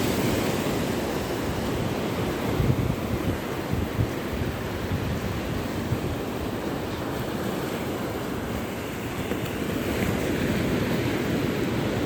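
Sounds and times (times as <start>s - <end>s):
waves breaking: 0.0s - 12.0s.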